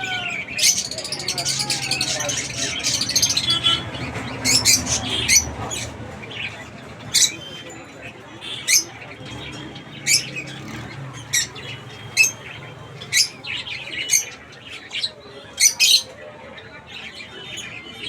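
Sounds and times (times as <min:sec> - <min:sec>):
bird chirps and squawks: 0:00.0 - 0:07.8
chatter of birds: 0:00.0 - 0:18.0.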